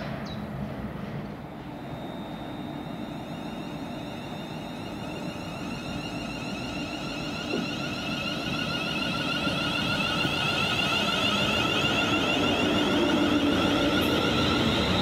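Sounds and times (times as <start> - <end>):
train approaching: 0.0 - 15.0
high multi-tone whine: 0.1 - 15.0.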